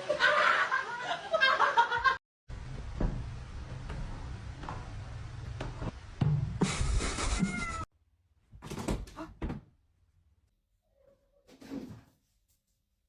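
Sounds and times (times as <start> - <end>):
cat meowing: 7.4 - 7.9.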